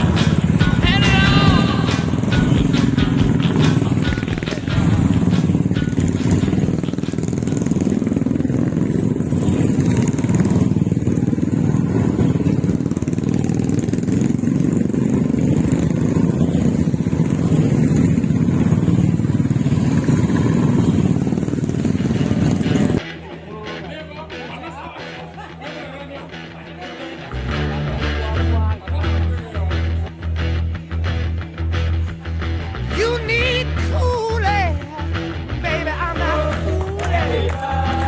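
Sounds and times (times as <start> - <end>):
motorcycle engine rumble: 0.0 - 38.0.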